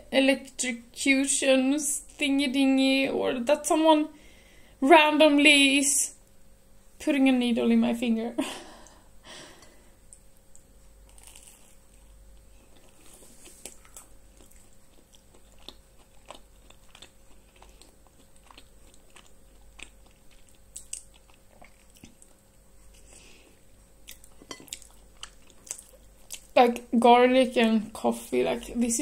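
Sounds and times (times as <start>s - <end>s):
mouth clicks and crunches: 10.1s - 22.4s, 24.0s - 26.6s
person chewing toast: 10.1s - 26.6s.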